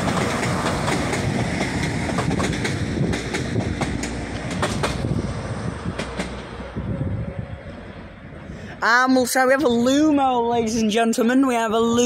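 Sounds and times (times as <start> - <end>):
train wheels clicking over rail joints: 0.0 - 6.5
diesel train engine rumble: 0.0 - 12.0.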